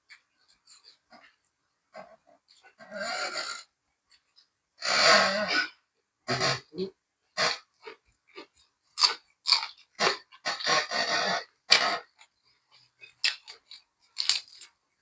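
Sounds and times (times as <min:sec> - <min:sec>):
person chewing and crunching food: 0:07.4 - 0:15.0.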